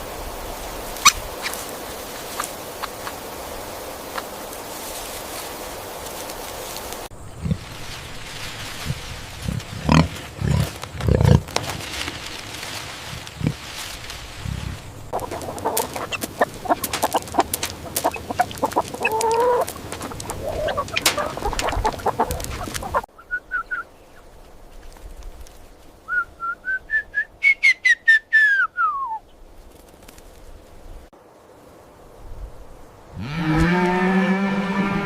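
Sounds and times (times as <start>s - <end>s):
chickens clucking: 2.2s - 3.2s, 14.4s - 23.1s
chicken calling: 15.1s - 23.8s.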